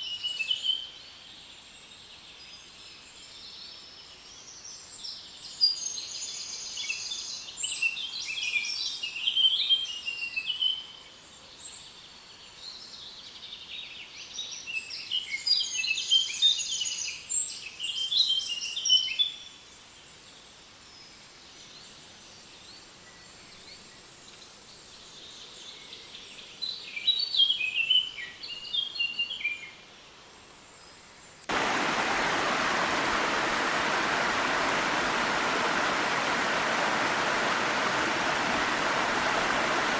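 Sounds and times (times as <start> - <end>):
faint background hiss: 0.0 - 39.9
rushing stream water: 31.5 - 39.9
songbird chirps and trills: 31.5 - 39.9.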